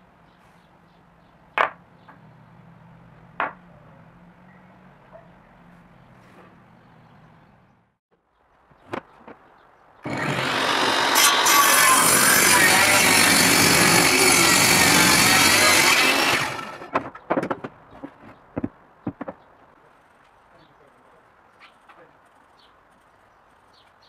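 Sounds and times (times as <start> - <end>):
power tool running: 10.0 - 16.9.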